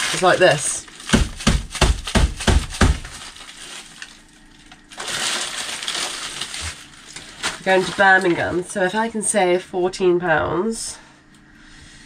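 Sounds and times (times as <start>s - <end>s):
paper bag crunching: 0.0s - 8.6s
paper bag crinkling rustle: 0.0s - 8.7s.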